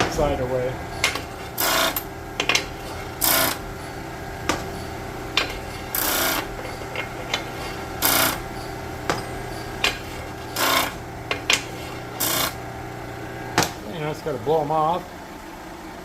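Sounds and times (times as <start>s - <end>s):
tool scraping steel edges: 0.0s - 12.7s.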